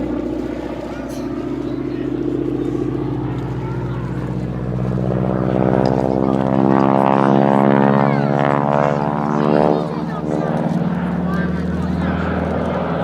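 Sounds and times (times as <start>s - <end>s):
propeller plane engine droning: 0.0s - 13.0s.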